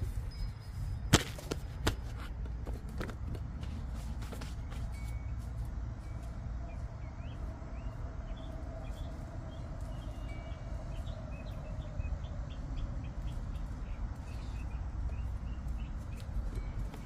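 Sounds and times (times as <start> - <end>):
small birds chirping: 4.6 - 17.0.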